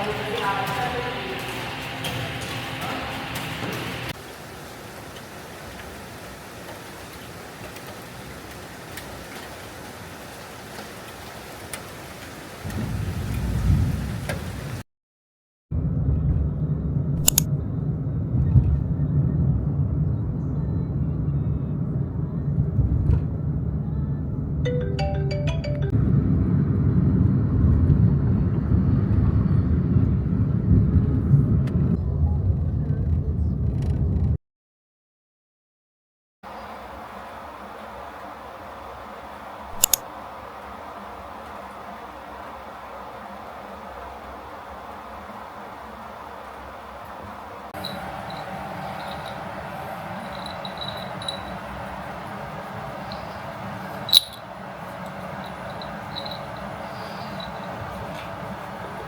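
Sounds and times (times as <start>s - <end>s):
steady rain falling: 0.0s - 14.8s, 36.5s - 59.0s
thunder rumble: 12.4s - 14.8s, 15.7s - 24.6s, 26.0s - 34.4s, 47.7s - 59.0s
brief tonal notes: 24.7s - 26.0s.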